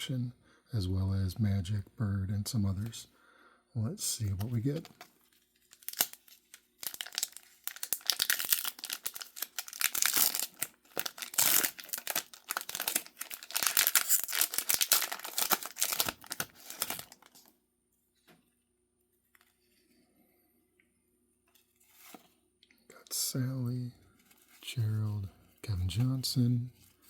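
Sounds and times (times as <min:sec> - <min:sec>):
card pack wrapper tearing and crinkling: 0:04.2 - 0:17.5.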